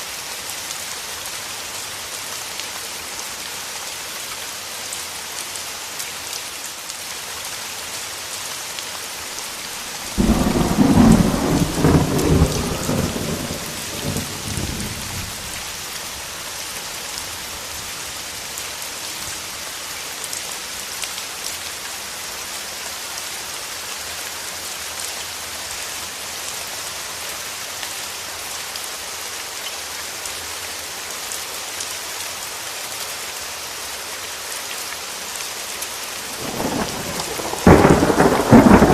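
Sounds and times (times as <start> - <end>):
steady rain: 0.0 - 38.9
thunderclap rumbling: 10.0 - 15.5, 36.4 - 38.9.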